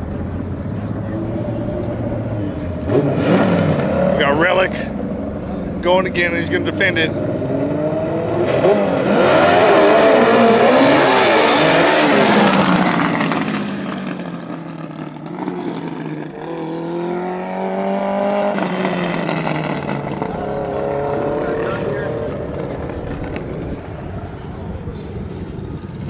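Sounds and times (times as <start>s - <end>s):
another engine: 0.0s - 26.0s
lawn mower engine racing: 0.0s - 26.0s.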